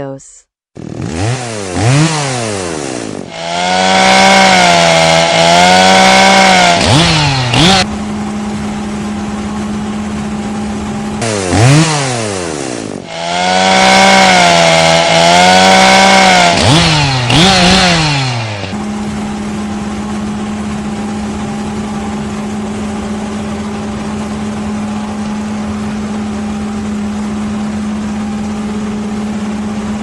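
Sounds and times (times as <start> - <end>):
chainsaw cutting at high revs: 0.8 - 7.9, 11.2 - 18.9.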